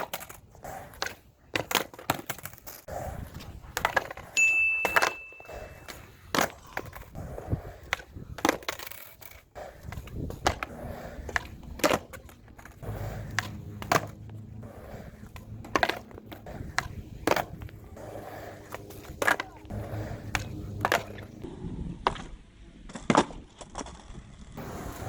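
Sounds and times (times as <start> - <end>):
skateboard slapping on pavement: 0.0 - 4.4, 5.0 - 25.0
skateboard wheels rolling: 0.0 - 25.0.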